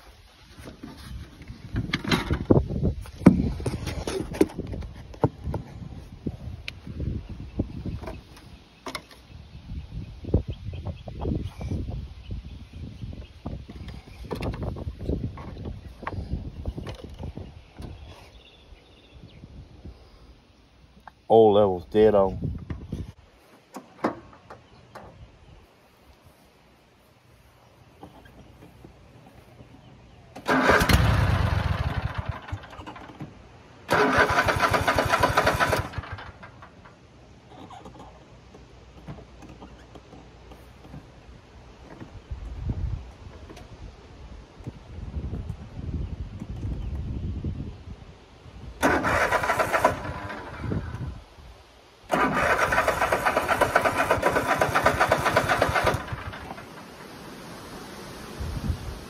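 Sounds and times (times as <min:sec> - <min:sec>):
starter cranking engine: 0:30.4 - 0:33.2, 0:33.9 - 0:36.8, 0:48.8 - 0:51.0, 0:52.1 - 0:56.8.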